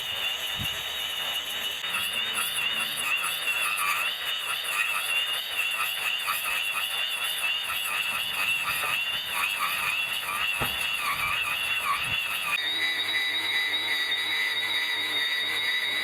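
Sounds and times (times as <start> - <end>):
grass trimmer motor whining: 0.0 - 16.0.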